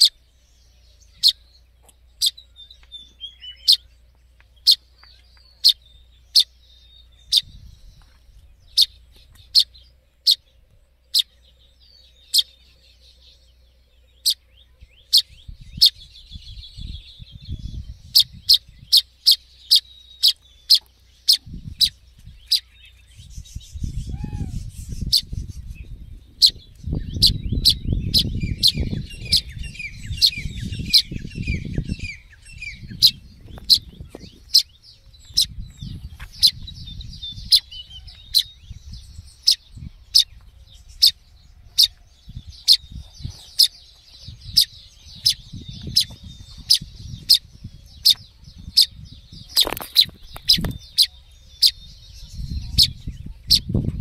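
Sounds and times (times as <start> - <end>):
bird chirping: 0.0 - 54.0
low rumbling noise: 0.0 - 54.0.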